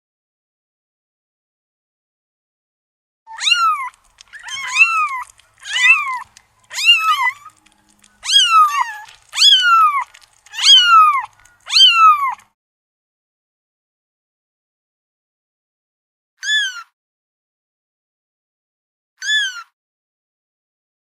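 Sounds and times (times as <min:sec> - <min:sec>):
kitten meowing: 0:03.3 - 0:12.4, 0:16.4 - 0:16.9, 0:19.2 - 0:19.7.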